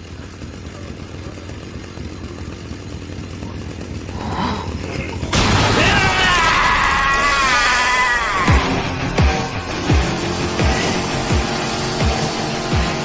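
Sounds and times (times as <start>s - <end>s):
low rumbling: 2.3s - 12.4s
chainsaw-like revving sound effect: 3.4s - 13.0s.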